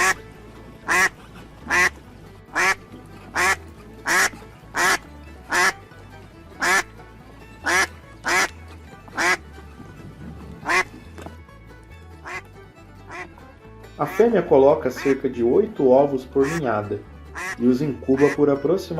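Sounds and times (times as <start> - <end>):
duck quacking: 0.0 - 0.2, 0.8 - 5.8, 6.6 - 6.9, 7.6 - 8.5, 9.2 - 9.4, 10.6 - 10.9, 12.2 - 12.4, 13.1 - 13.3, 14.0 - 14.3, 14.9 - 15.2, 16.4 - 16.7, 17.3 - 18.4
quiet background music: 0.0 - 18.9.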